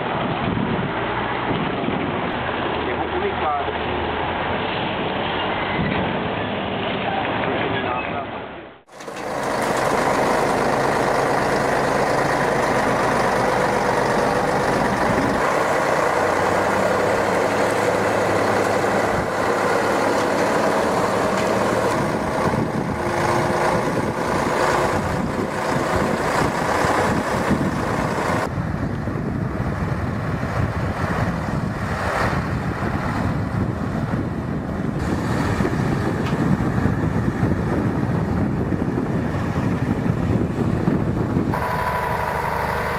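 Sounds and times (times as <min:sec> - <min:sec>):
heavy vehicle engine rumbling: 0:00.0 - 0:42.9.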